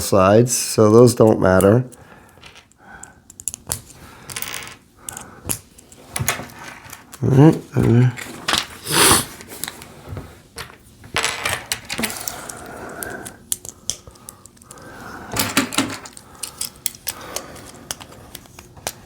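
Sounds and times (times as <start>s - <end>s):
plastic toy pieces clicking: 15.4s - 19.0s.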